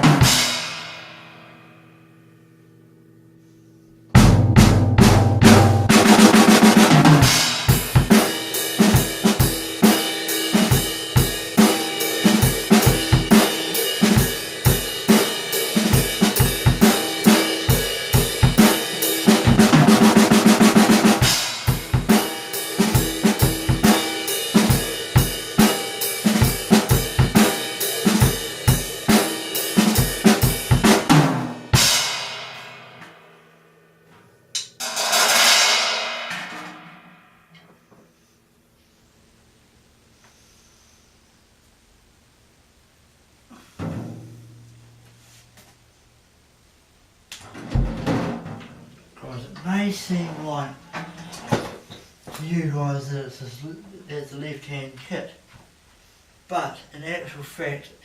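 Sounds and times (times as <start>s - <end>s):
drum kit beat: 0.0s - 1.4s, 4.1s - 33.4s, 34.6s - 37.4s
cymbal crash: 34.8s - 37.6s.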